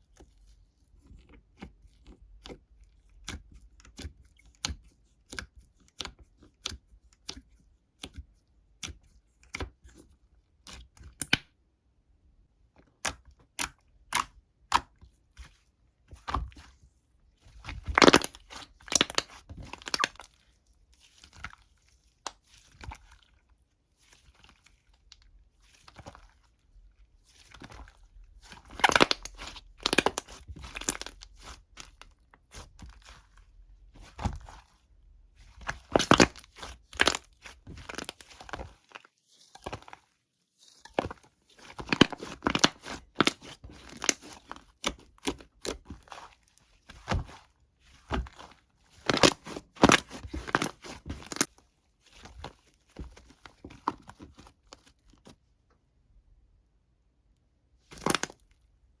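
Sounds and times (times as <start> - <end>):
crisp crunching and crinkling: 17.5 - 34.8, 35.4 - 55.3, 57.9 - 58.5.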